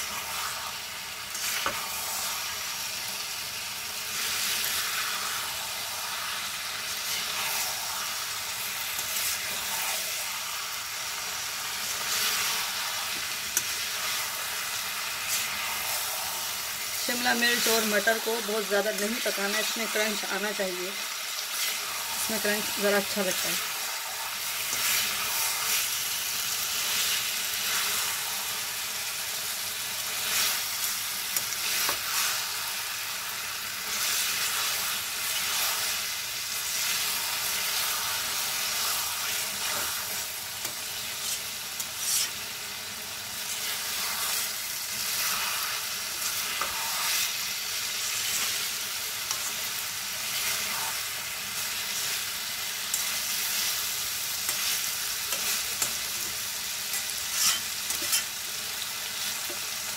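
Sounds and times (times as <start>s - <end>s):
vegetables sizzling in a pan: 0.0s - 59.9s
spatula scraping and knocking pan: 42.0s - 42.4s, 56.9s - 58.3s.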